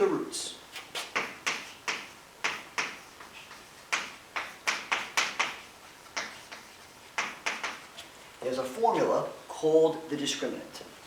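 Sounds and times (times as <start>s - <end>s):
writing strokes on a board: 0.7s - 8.2s.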